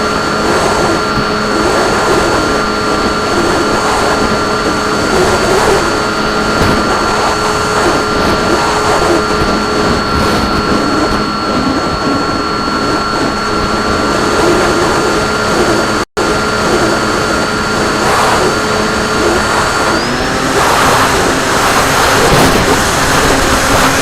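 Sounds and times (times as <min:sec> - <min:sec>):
wind rushing: 0:00.0 - 0:16.0
model plane motor whine: 0:00.0 - 0:24.0.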